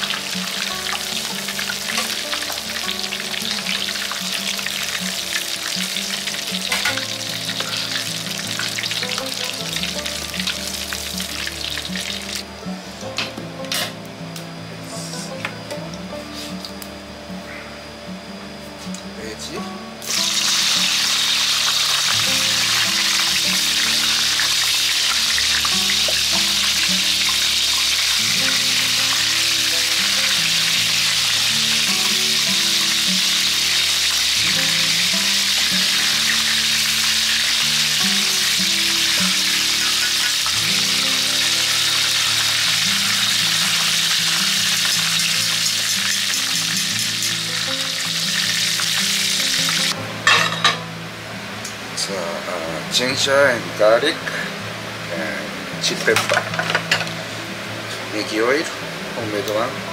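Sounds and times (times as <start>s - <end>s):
vegetables sizzling in hot oil: 0.0s - 12.6s, 20.0s - 50.5s
background music: 0.0s - 59.9s.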